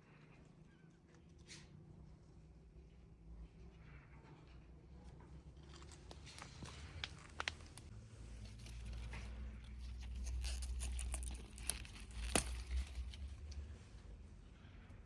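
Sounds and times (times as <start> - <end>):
crinkling and rustling handling: 4.3 - 14.2.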